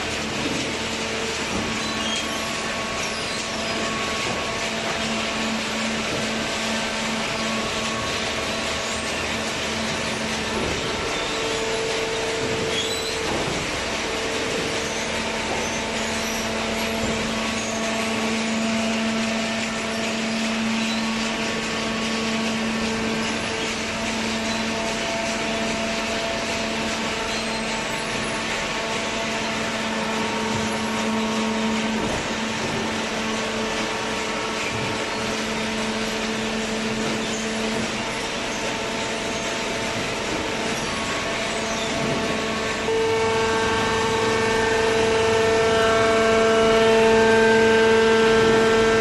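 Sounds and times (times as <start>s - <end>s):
baler machine hum: 0.0s - 49.0s.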